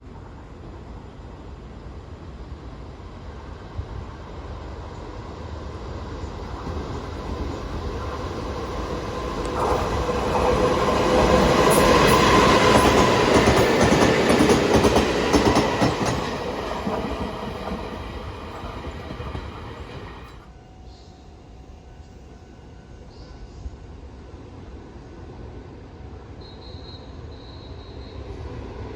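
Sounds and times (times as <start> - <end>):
train passing: 0.1 - 28.9
wheels clattering over rail joints: 6.3 - 20.4.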